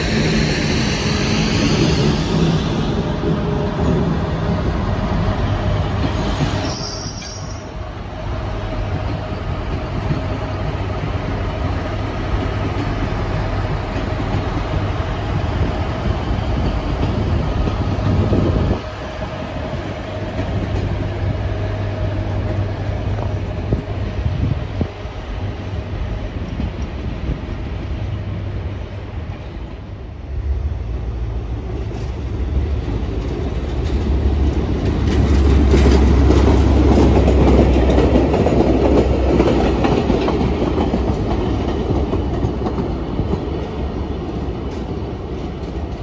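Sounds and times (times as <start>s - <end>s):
train wheels rumbling on rails: 0.0s - 46.0s
high-pitched wheel squeal: 6.1s - 8.0s.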